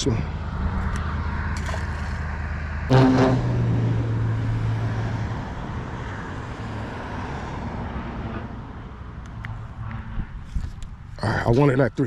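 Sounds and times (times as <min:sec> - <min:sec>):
passing engine hum: 0:00.0 - 0:11.2.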